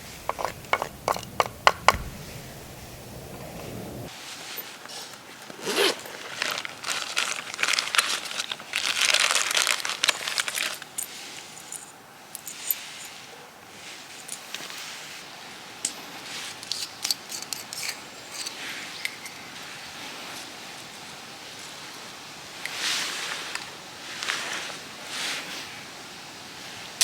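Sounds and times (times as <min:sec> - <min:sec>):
crinkling of wrapping: 0:04.3 - 0:11.8.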